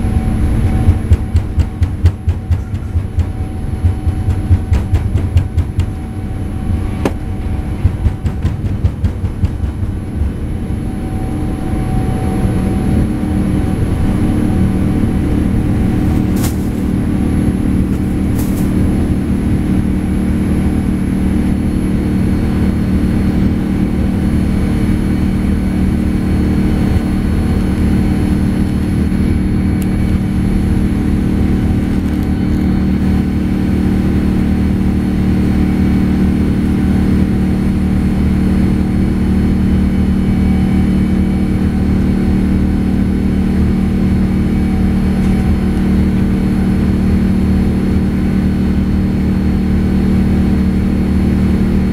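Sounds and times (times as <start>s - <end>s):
jet engines roaring: 0.0s - 51.9s.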